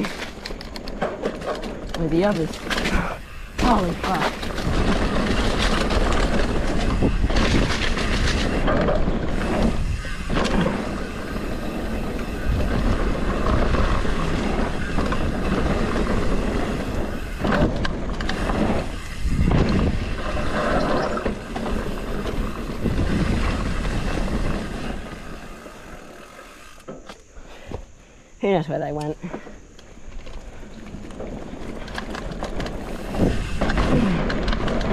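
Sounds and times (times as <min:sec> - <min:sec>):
rushing wind: 0:00.0 - 0:26.9, 0:29.6 - 0:34.9
bike knocking over bumps: 0:00.0 - 0:27.8, 0:30.9 - 0:34.9
bike tyre noise on dirt: 0:00.0 - 0:34.9.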